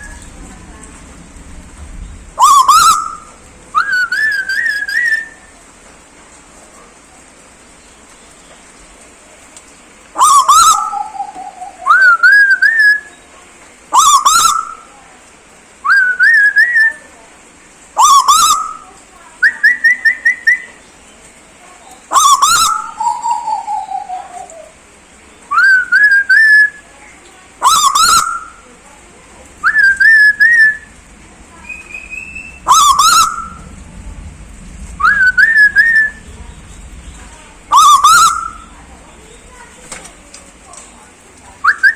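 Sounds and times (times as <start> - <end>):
bird whistled calls: 2.4 - 5.5, 10.2 - 13.2, 14.0 - 14.9, 18.0 - 20.8, 22.1 - 24.7, 25.4 - 26.9, 27.6 - 28.7, 29.6 - 33.8, 35.0 - 39.7, 41.6 - 41.9.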